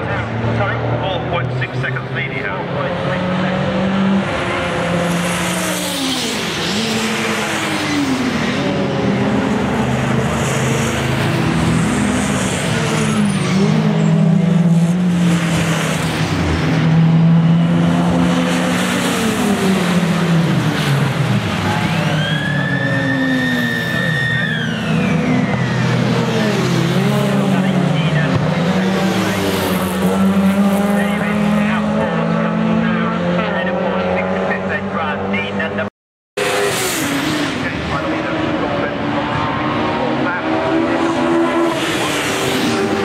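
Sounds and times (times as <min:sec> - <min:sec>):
racing cars passing: 0:00.0 - 0:43.0.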